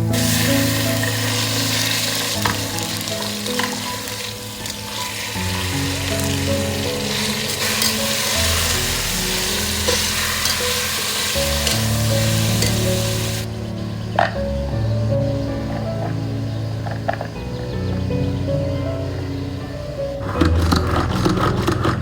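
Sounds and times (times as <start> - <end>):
chicken sizzling in a pan: 0.0 - 13.5
soft background music: 0.0 - 22.0.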